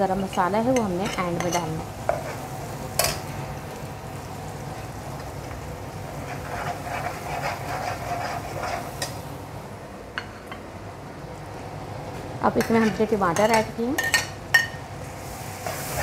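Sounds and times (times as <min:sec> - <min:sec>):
masala sizzling in oil: 0:00.0 - 0:09.7, 0:12.4 - 0:16.0
ladle stirring and scraping: 0:06.2 - 0:09.1.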